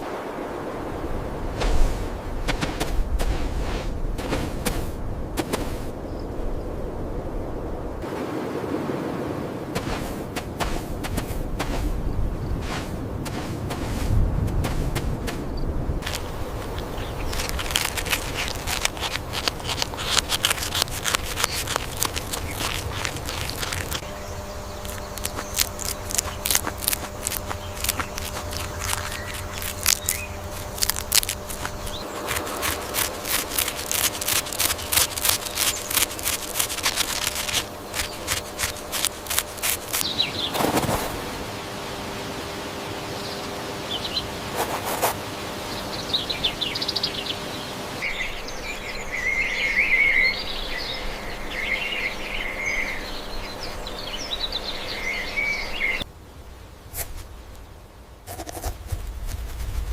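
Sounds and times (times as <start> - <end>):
rapid clicking and rustling: 14.5 - 24.1, 24.7 - 41.0.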